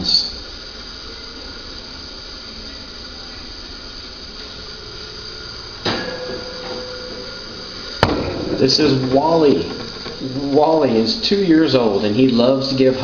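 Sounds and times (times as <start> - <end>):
faint steady tone: 0.0 - 13.0
room noise hiss and hum: 0.0 - 13.0
sudden sound: 5.8 - 11.9.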